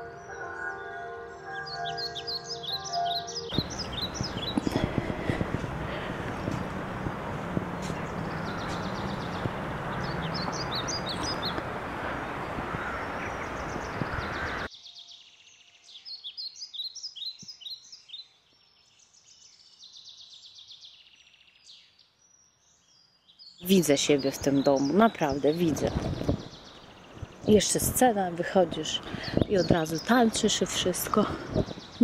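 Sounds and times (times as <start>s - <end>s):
songbirds chirping and trilling: 0.0s - 32.0s
steady rushing noise: 3.6s - 14.7s.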